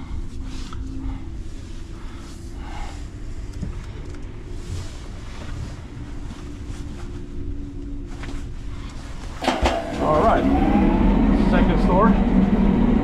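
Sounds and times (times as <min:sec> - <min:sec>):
truck engine rumble: 0:09.0 - 0:13.0
road noise: 0:09.4 - 0:13.0.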